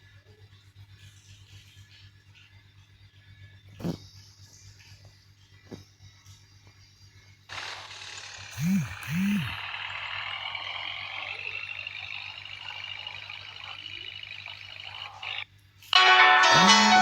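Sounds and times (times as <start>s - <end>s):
vehicle accelerating with whine: 7.6s - 15.5s
low hooting blips: 16.4s - 17.0s.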